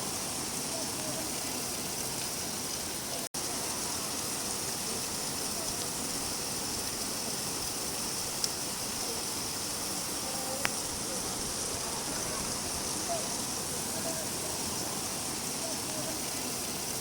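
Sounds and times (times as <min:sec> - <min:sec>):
steady rainfall: 0:00.0 - 0:17.0
faint ticks: 0:10.6 - 0:10.8.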